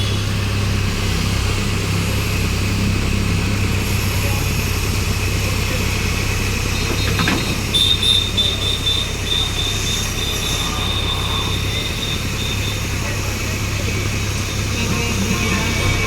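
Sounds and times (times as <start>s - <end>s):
construction machine engine running: 0.0s - 16.0s
high metallic squeal: 6.8s - 13.1s.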